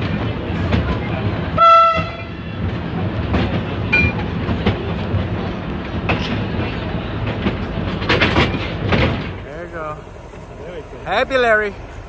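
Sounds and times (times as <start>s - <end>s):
train rumbling: 0.0s - 12.0s
wheels clacking over rails: 0.0s - 12.0s.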